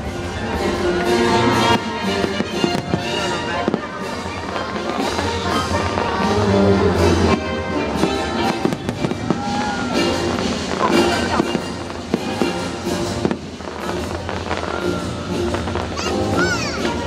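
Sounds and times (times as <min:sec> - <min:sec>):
fireworks popping and banging: 0:00.0 - 0:17.0
music over loudspeakers: 0:00.0 - 0:17.0.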